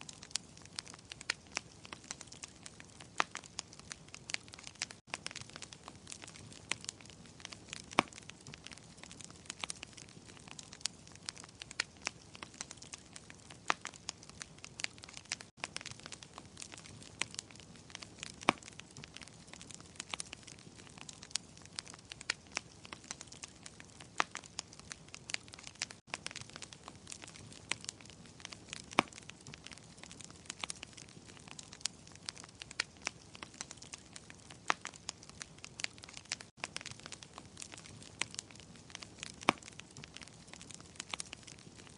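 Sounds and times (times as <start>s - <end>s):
wood fire crackling and popping: 0.0s - 41.9s.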